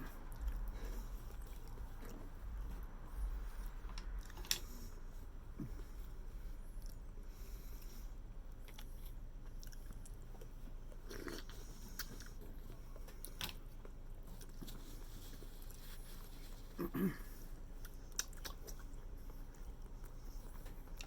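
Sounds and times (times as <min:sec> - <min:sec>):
person chewing and biting: 0:08.6 - 0:13.7, 0:17.8 - 0:20.0.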